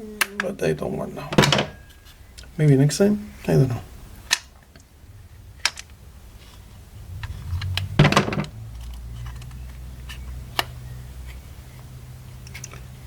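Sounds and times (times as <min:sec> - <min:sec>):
low steady hum: 0:00.0 - 0:13.0
hands handling plastic parts: 0:05.6 - 0:11.4.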